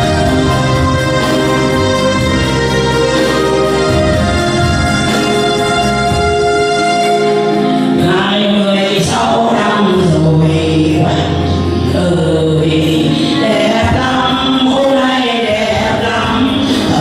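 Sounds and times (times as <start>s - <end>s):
instrumental accompaniment: 0.0s - 17.0s
person singing: 7.0s - 17.0s.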